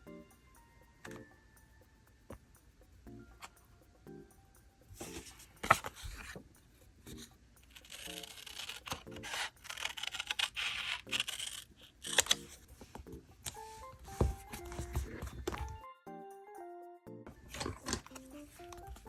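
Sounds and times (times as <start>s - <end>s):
paper tearing and rustling: 7.8s - 12.5s.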